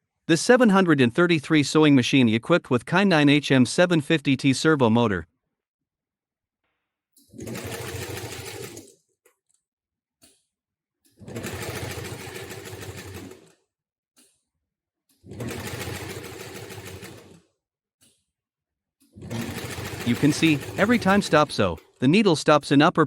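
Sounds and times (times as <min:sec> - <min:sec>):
industrial sewing machine sewing: 0:07.3 - 0:09.0, 0:11.2 - 0:13.6, 0:15.2 - 0:17.5, 0:19.1 - 0:22.2.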